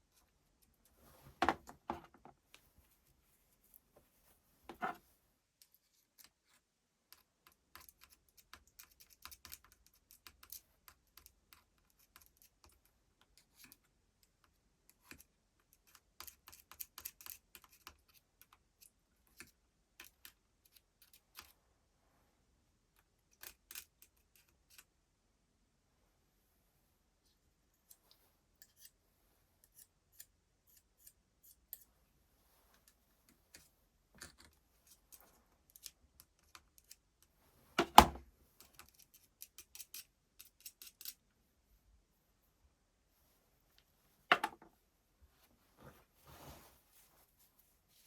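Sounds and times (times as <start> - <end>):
small parts and tools clicking: 5.6 - 21.6, 23.0 - 24.9, 32.8 - 41.3.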